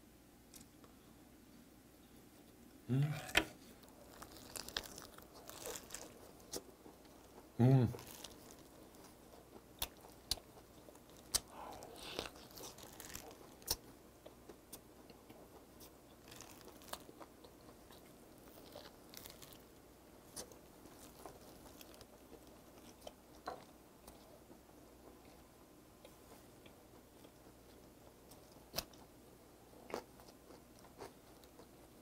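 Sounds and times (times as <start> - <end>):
person chewing: 3.0 - 25.4, 29.8 - 32.0.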